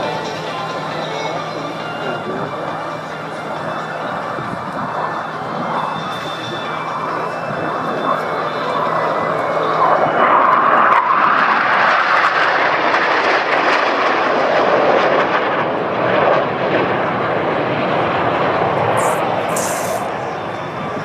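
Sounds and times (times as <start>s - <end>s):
jets roaring past: 0.0s - 21.0s
high hisses: 19.0s - 20.1s.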